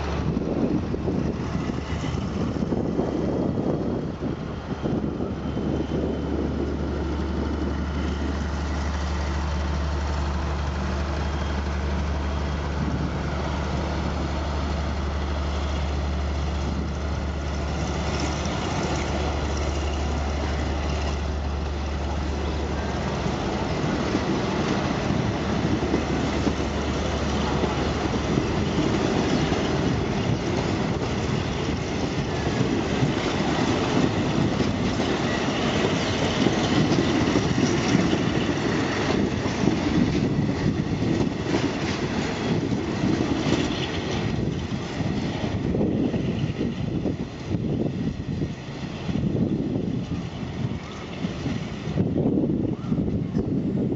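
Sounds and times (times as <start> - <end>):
diesel engine drone: 1.9 - 37.6
train wheels clattering on rails: 4.8 - 53.8.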